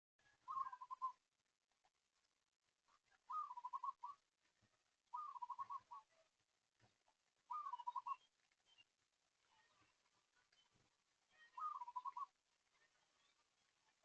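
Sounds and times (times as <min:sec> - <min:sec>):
bird whistling phrase: 0:00.5 - 0:01.2, 0:03.3 - 0:04.2, 0:07.5 - 0:08.2, 0:11.6 - 0:12.3.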